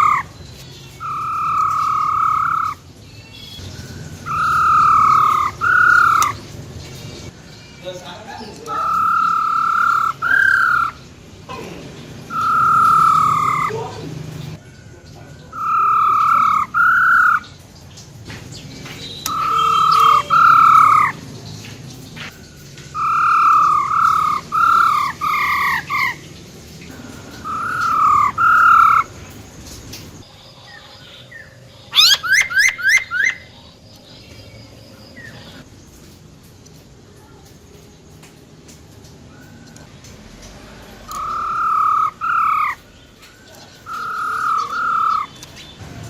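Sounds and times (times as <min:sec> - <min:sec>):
bird call with downward notes: 0:00.0 - 0:06.4, 0:07.2 - 0:11.0, 0:12.3 - 0:13.8, 0:15.4 - 0:17.5, 0:19.1 - 0:21.2, 0:22.9 - 0:26.3, 0:27.2 - 0:29.1, 0:31.3 - 0:33.5, 0:41.1 - 0:45.6.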